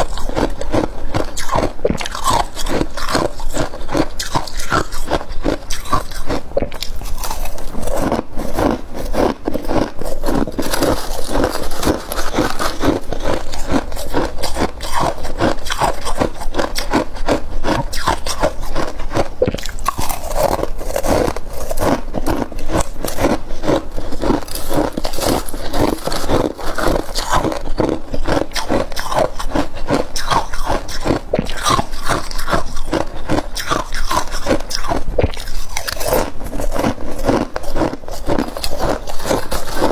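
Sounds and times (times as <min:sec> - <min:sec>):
frost being chewed: 0:00.0 - 0:39.9.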